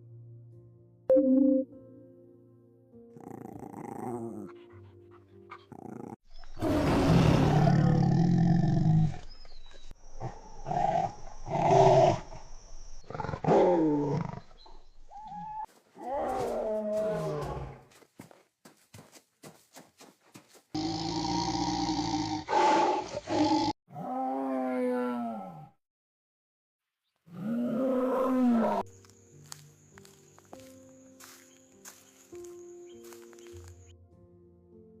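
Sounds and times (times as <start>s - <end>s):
tiger roaring: 5.7s - 9.2s.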